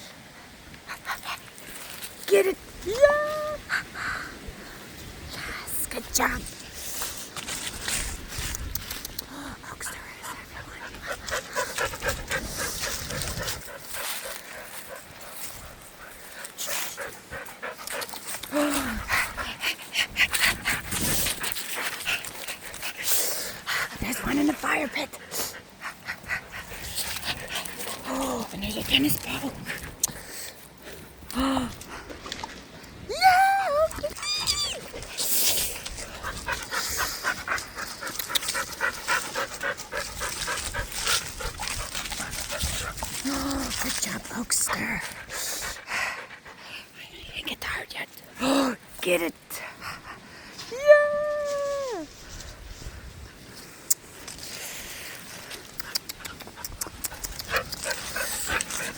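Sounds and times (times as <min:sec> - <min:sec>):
dog panting: 0:09.8 - 0:31.1, 0:34.8 - 0:47.0, 0:49.4 - 0:50.5, 0:55.3 - 0:58.9.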